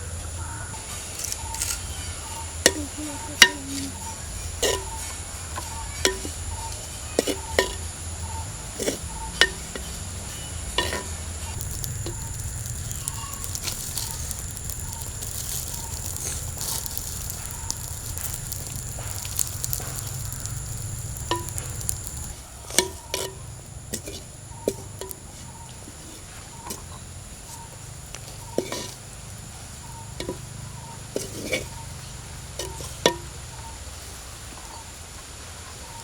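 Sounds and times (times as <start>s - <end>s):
leaves sizzling in pan: 0.4s - 36.0s
spoon knocking against pan: 7.2s - 7.9s, 8.8s - 9.9s, 12.9s - 25.2s, 28.5s - 29.0s, 32.6s - 33.3s.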